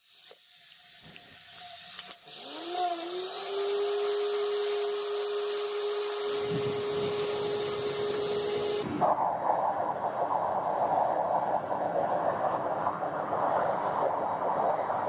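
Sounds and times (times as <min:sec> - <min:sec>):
power tool motor spinning: 0:00.0 - 0:08.8
thin high whine: 0:03.3 - 0:15.0.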